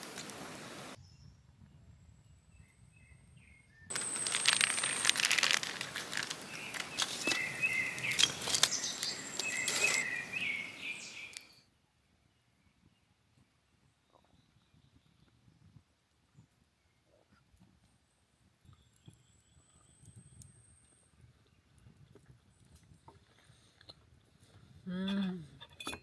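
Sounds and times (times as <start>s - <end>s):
hissing crackling noise: 0.0s - 1.0s, 3.9s - 11.4s
small birds chirping: 0.0s - 1.3s, 3.0s - 11.6s.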